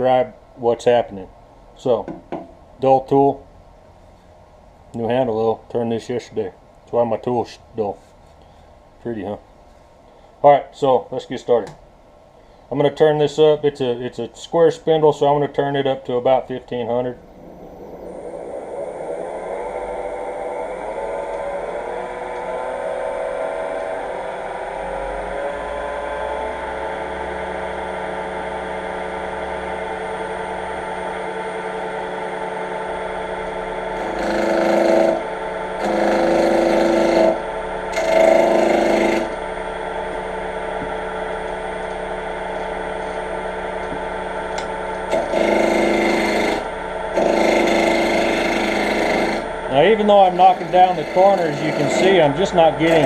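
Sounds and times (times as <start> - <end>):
wood lathe motor whine: 17.0 - 53.0
gouge scraping spinning wood: 34.0 - 39.4, 45.1 - 53.0.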